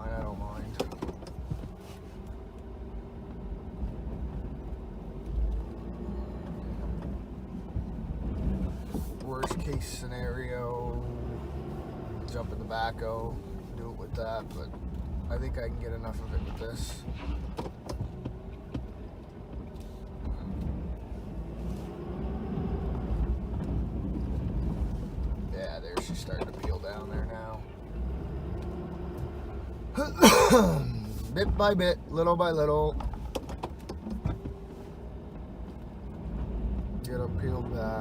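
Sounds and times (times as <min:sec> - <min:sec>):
truck engine rumbling: 0:00.0 - 0:38.0.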